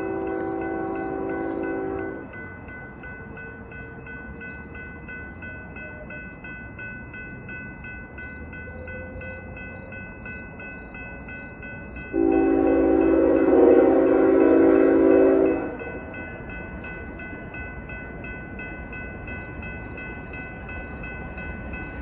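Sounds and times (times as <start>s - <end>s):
locomotive air horn: 0.0s - 2.2s, 12.1s - 15.8s
crossing bell ringing: 0.0s - 22.0s
low train rumble: 0.0s - 22.0s.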